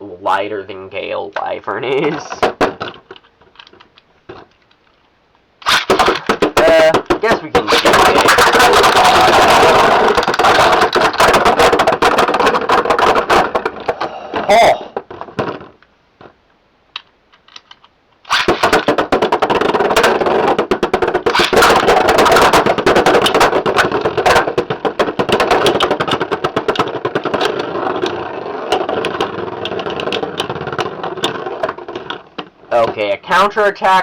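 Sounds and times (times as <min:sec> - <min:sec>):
spinning tops clicking and rattling: 0:05.6 - 0:13.6, 0:18.2 - 0:32.1.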